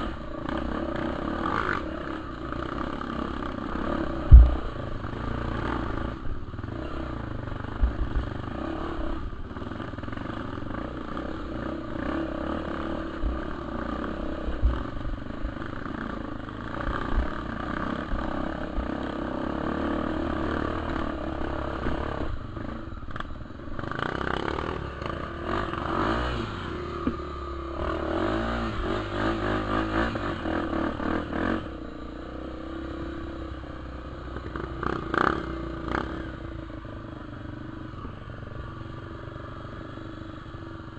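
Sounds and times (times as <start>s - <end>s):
dirt bike engine running: 0.0s - 40.9s
knocks and clatter from bike: 4.2s - 4.9s.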